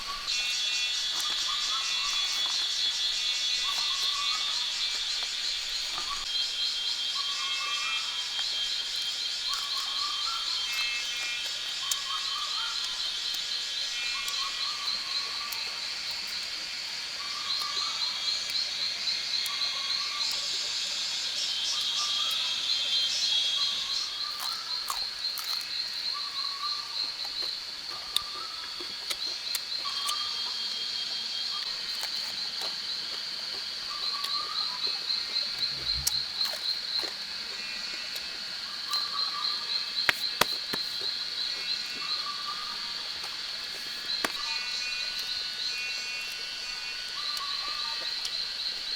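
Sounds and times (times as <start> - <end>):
frogs and insects trilling: 0.0 - 48.9
lower animal call: 35.5 - 36.4.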